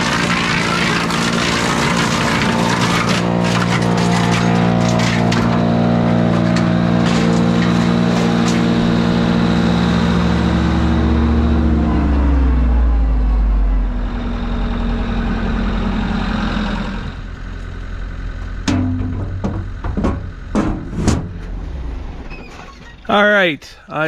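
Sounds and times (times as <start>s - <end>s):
wood cracking in chipper: 0.0s - 12.3s
wood chipper running: 0.0s - 22.6s.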